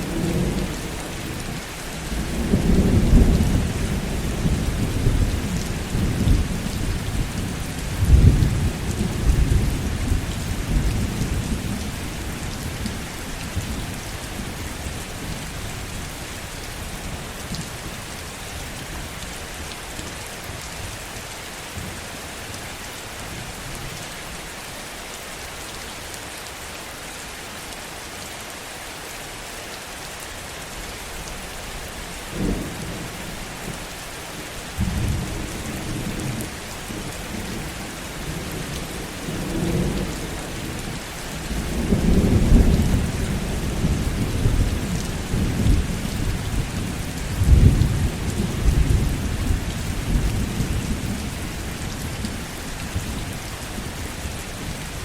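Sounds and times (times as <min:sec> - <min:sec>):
heavy rain falling: 0:00.0 - 0:55.0
thunder rumbling: 0:02.0 - 0:12.7.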